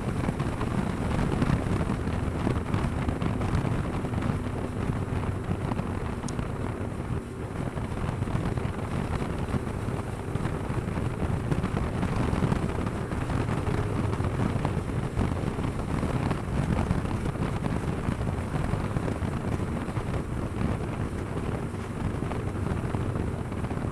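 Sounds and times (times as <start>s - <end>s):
motorcycle engine running: 0.0s - 23.9s
wind buffeting microphone: 0.0s - 23.9s.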